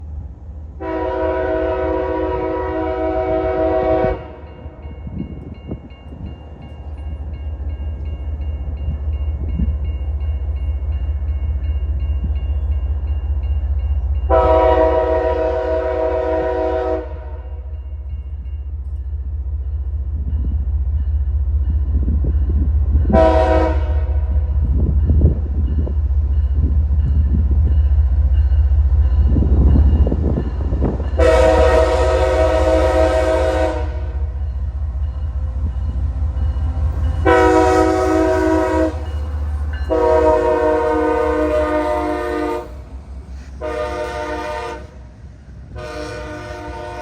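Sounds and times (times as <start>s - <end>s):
rumble of passing train: 0.0s - 47.0s
locomotive air horn blasts: 0.8s - 4.5s, 14.3s - 17.6s, 23.1s - 24.3s, 31.2s - 34.3s, 37.2s - 39.1s, 39.9s - 42.9s, 43.6s - 45.0s, 45.7s - 47.0s.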